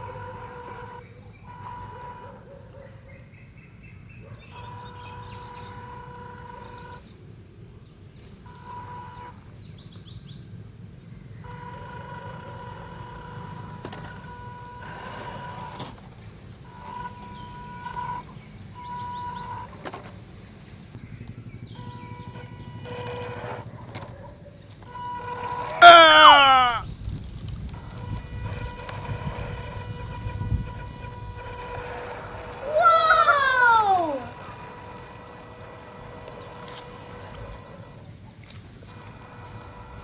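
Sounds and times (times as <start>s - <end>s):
electric motors whining: 11.5s - 16.0s, 16.6s - 18.3s, 27.6s - 38.1s
high falling chirps: 25.8s - 26.8s.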